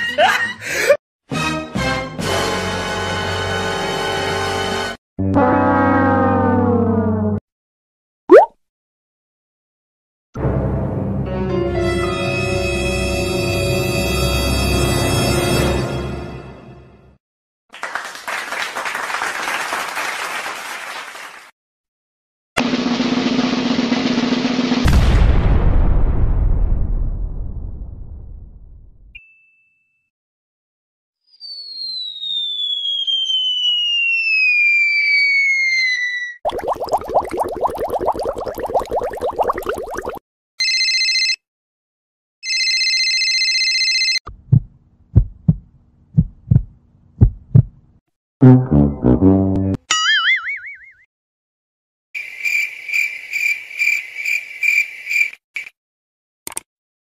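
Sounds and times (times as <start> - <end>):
applause: 17.7 - 21.6
telephone ringing: 40.6 - 41.4, 42.4 - 44.2
heartbeat thumps: 44.3 - 47.8
drum sound effect: 44.5 - 45.6, 46.2 - 47.7.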